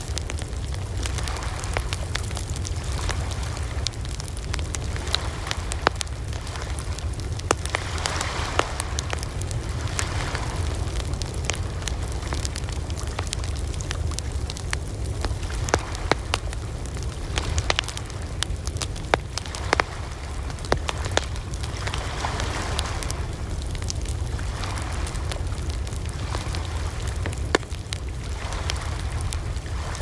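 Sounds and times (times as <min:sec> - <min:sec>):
campfire rumbling: 0:00.0 - 0:30.0
fire crackling and popping: 0:00.0 - 0:30.0.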